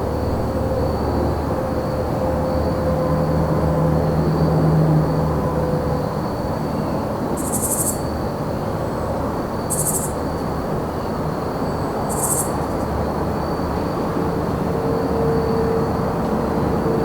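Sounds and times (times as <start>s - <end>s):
cricket trill: 0.0s - 17.0s
distant traffic rumble: 0.0s - 17.0s
high rasping insect calls: 6.0s - 13.6s.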